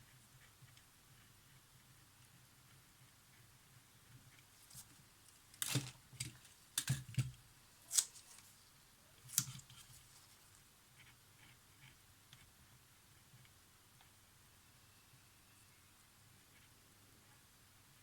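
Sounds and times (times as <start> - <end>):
sharp clicks and handling noises: 5.5 - 8.5.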